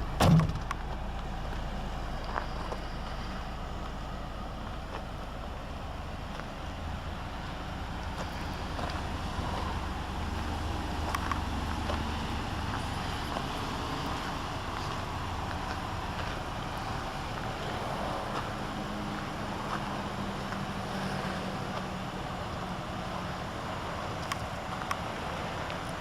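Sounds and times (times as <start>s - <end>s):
car engine humming: 0.0s - 26.0s.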